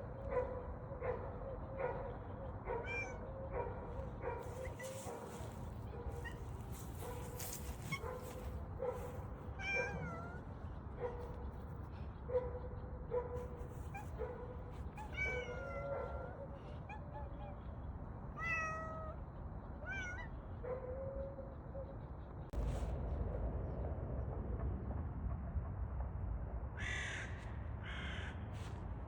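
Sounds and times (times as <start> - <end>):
cat meowing: 2.8 - 3.3, 9.6 - 10.5, 14.9 - 17.5, 18.4 - 19.2, 19.8 - 20.3.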